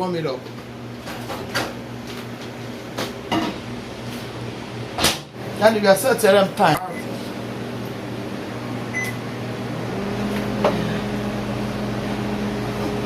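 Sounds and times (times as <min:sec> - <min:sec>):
microwave running hum: 0:00.0 - 0:13.0
microwave keypad beep: 0:08.9 - 0:09.2.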